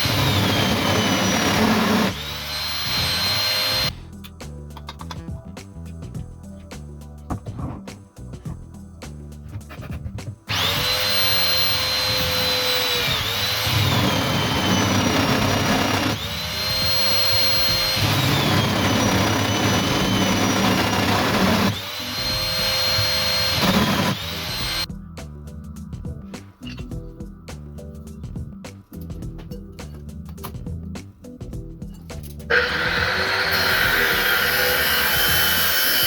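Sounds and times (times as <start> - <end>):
power tool motor whining: 0.0 - 3.9, 10.5 - 24.9, 32.5 - 36.0.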